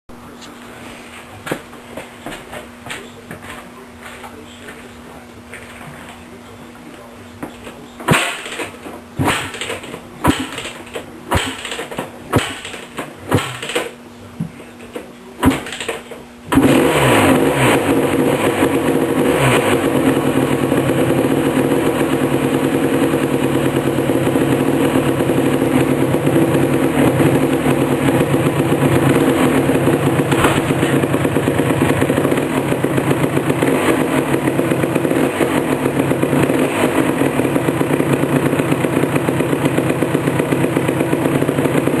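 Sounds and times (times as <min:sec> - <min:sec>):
two-stroke engine running: 0:08.0 - 0:14.0, 0:15.4 - 0:42.0
engine kick start attempts: 0:08.1 - 0:14.0, 0:15.4 - 0:18.2.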